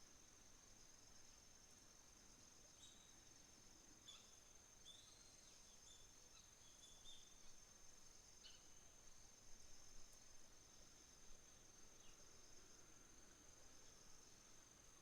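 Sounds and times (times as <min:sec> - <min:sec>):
high-pitched insect trill: 0:00.1 - 0:15.0
small birds chirping: 0:04.0 - 0:07.5.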